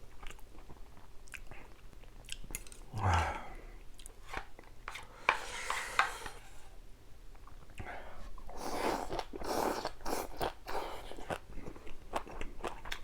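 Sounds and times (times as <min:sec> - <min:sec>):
person chewing food: 0:00.0 - 0:05.1, 0:07.4 - 0:13.0.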